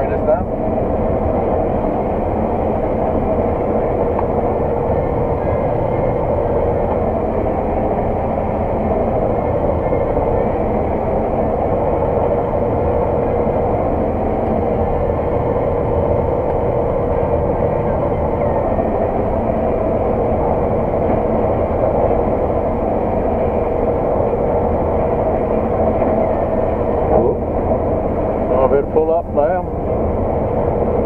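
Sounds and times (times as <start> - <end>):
combine harvester drone: 0.0 - 31.0.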